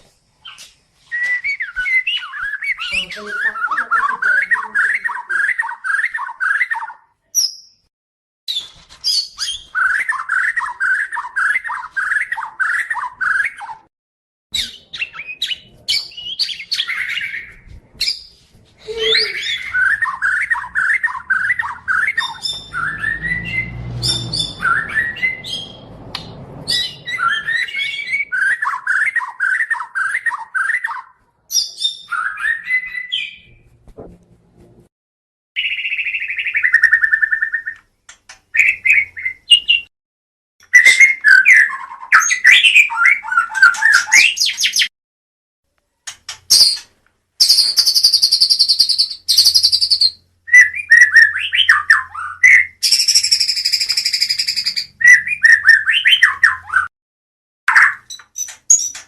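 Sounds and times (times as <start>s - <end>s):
songbird singing: 0.4s - 7.9s, 18.9s - 33.6s, 47.4s - 56.9s.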